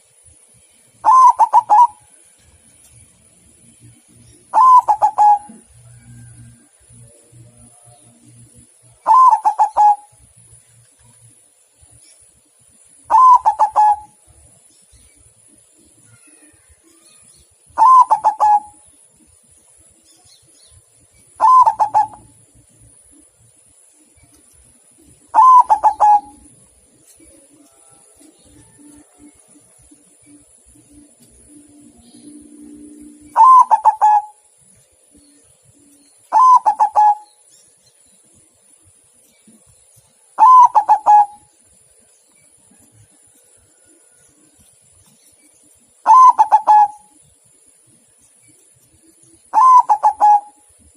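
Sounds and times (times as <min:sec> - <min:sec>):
dove cooing: 0:01.0 - 0:02.0, 0:04.5 - 0:06.4, 0:08.1 - 0:10.1, 0:13.1 - 0:14.2, 0:17.8 - 0:18.8, 0:21.4 - 0:23.2, 0:25.3 - 0:26.6, 0:30.3 - 0:34.4, 0:36.3 - 0:37.3, 0:40.4 - 0:41.5, 0:46.0 - 0:47.2, 0:49.5 - 0:50.7.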